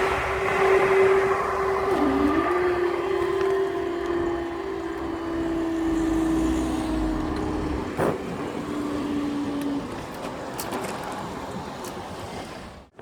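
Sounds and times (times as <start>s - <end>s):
deep rumble: 0.0s - 8.4s
diesel locomotive engine drone: 0.0s - 13.0s.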